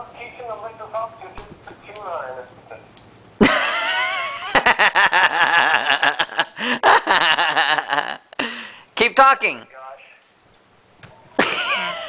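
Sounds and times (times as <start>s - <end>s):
people laughing hard: 3.4s - 8.3s, 11.4s - 12.0s.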